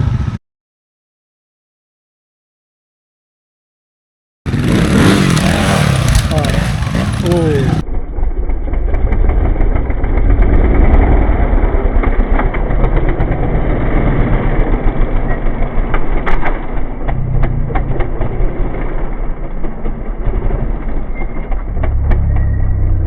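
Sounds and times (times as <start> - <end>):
motorcycle engine running: 4.5 - 23.0.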